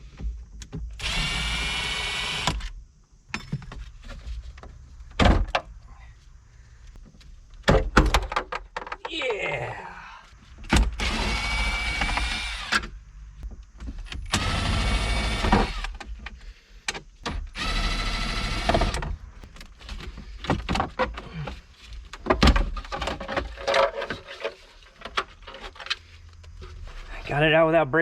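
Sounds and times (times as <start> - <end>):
small electric motor whirring: 1.0 - 2.7, 11.0 - 12.9, 14.3 - 16.0, 17.5 - 19.0.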